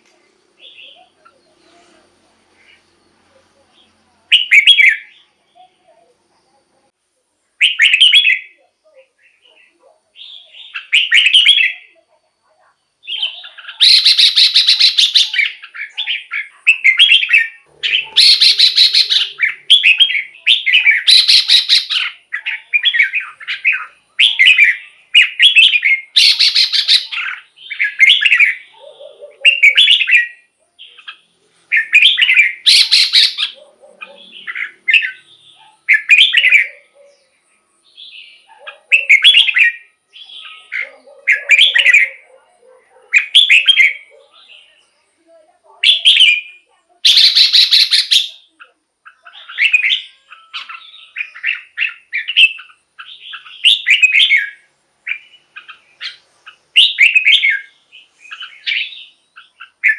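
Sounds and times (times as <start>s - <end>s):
bird singing whistled phrases: 4.3s - 5.2s, 7.6s - 8.6s, 10.2s - 12.0s, 13.0s - 28.7s, 31.7s - 33.6s, 38.0s - 42.2s, 45.8s - 48.5s, 49.1s - 57.7s, 58.3s - 59.9s.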